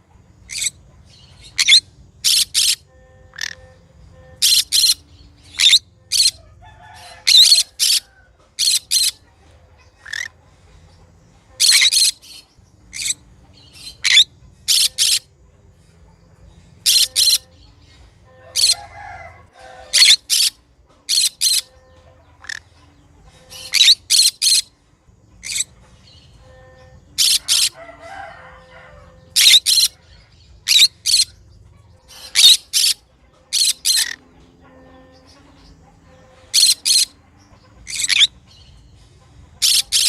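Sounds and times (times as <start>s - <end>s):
parrot screeching: 1.6s - 3.6s, 5.6s - 9.2s, 14.0s - 15.2s, 16.8s - 17.4s, 18.5s - 21.7s, 23.6s - 24.7s, 27.2s - 28.6s, 29.3s - 30.0s, 30.7s - 31.3s, 32.2s - 33.0s, 33.6s - 34.2s, 36.5s - 37.1s, 37.8s - 38.3s.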